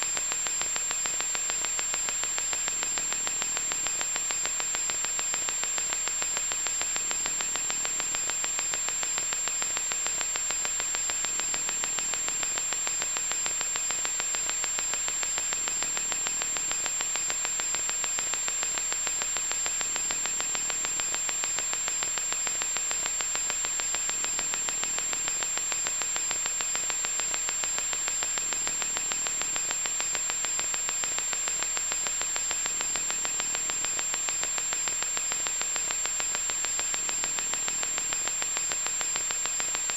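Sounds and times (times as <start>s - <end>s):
electronic static hiss: 0.0s - 39.9s.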